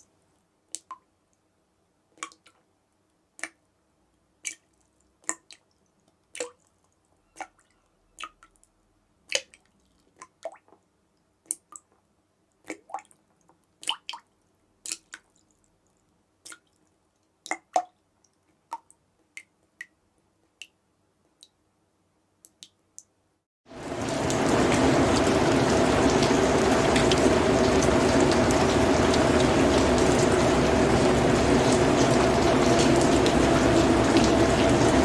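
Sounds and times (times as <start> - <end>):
heavy rain: 23.7 - 35.0.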